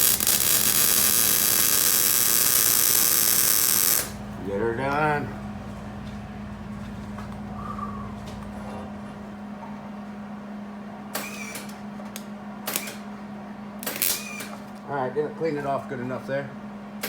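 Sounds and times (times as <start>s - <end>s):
welding arc crackle: 0.0s - 4.2s, 13.8s - 14.3s
steady hum: 0.0s - 17.0s.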